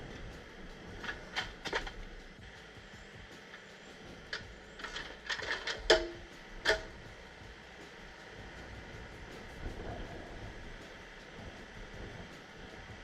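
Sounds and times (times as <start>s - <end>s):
sharp knocks and clanks: 4.4s - 7.0s.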